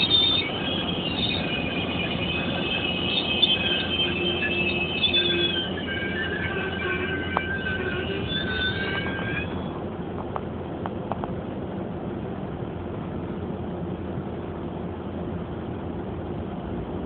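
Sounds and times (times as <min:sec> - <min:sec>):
high wheel squeal: 0:00.0 - 0:09.8
train low rumble: 0:00.0 - 0:17.0.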